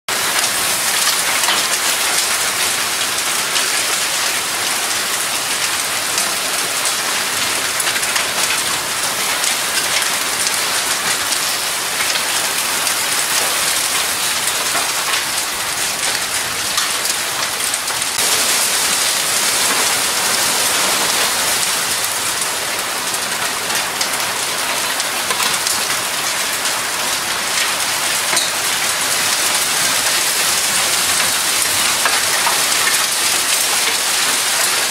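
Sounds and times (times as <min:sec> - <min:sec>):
heavy rain: 0:00.1 - 0:34.9.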